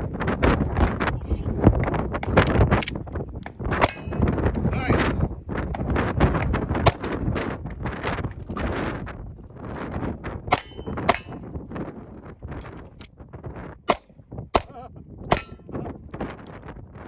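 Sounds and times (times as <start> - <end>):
wind buffeting microphone: 0.0 - 17.0
gunshots: 3.8 - 4.3, 14.6 - 15.6
metallic ring of steel target: 3.8 - 4.4, 10.5 - 11.6, 13.9 - 15.8.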